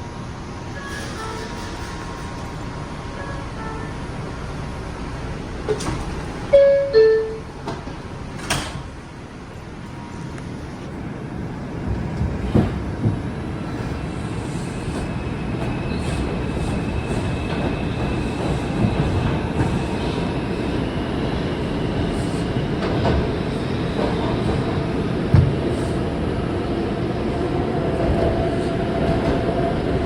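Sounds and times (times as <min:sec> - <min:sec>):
subway train running noise: 0:00.0 - 0:30.0
subway door chime: 0:00.6 - 0:10.6.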